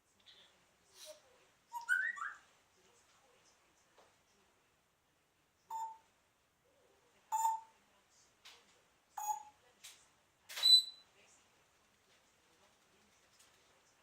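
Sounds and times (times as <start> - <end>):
parrot beep-like calls: 5.7 - 6.0, 7.3 - 7.7.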